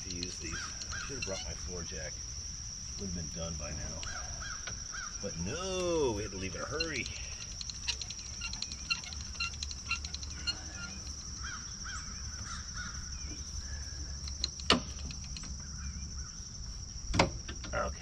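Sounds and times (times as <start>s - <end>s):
birds calling: 0.0s - 17.1s
steady high-pitched whine: 0.0s - 18.0s.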